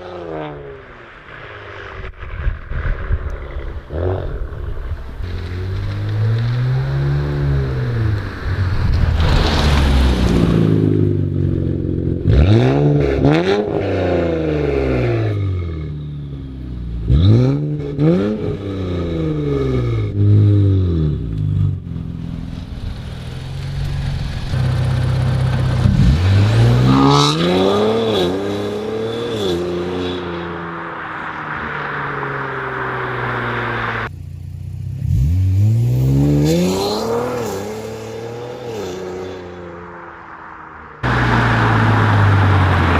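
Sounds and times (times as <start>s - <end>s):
car engine accelerating hard: 17.0s - 34.1s, 41.0s - 42.9s.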